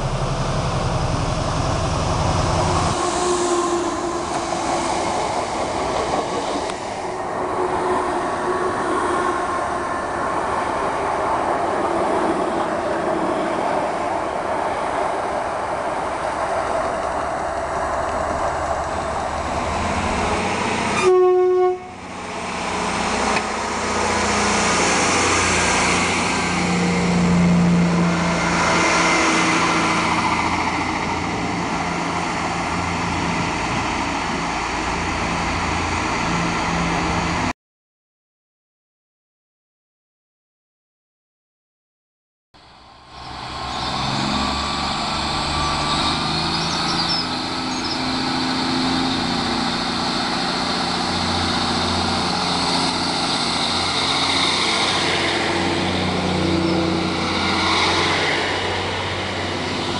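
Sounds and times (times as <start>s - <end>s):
diesel train engine running: 0.0s - 37.5s, 42.6s - 59.9s
trains rumbling past: 0.0s - 37.5s, 42.6s - 59.9s
train horn blast: 20.9s - 22.0s.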